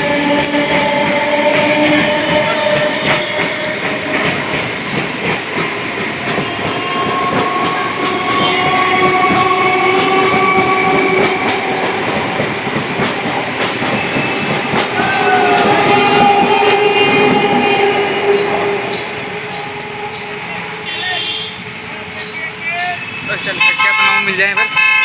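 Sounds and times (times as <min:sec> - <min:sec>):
electric train whine rising: 0:00.0 - 0:22.1
train wheel clatter over rail joints: 0:00.4 - 0:16.5.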